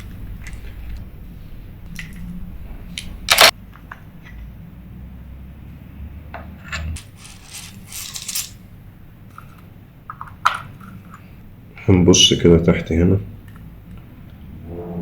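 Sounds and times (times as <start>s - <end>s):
rustling scrape: 6.9s - 8.6s.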